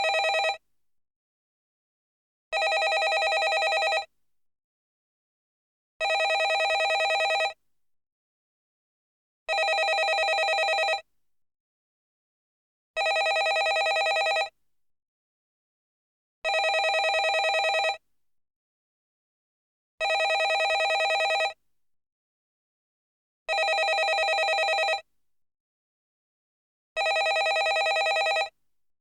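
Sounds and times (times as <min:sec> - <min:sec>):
telephone bell ringing: 0:00.0 - 0:00.6, 0:02.6 - 0:04.1, 0:06.0 - 0:07.6, 0:09.5 - 0:11.0, 0:13.0 - 0:14.5, 0:16.5 - 0:18.0, 0:20.0 - 0:21.6, 0:23.5 - 0:25.0, 0:27.0 - 0:28.5.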